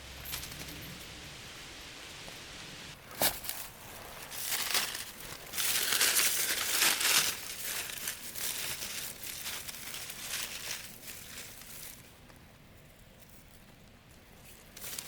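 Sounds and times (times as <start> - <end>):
footsteps crunching dry leaves: 3.0 - 12.0.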